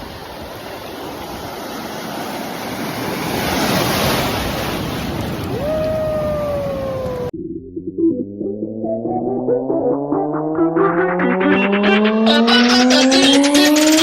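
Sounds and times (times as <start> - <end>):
waves breaking on a beach: 0.0 - 7.3
held tone sliding down in pitch: 7.3 - 14.0.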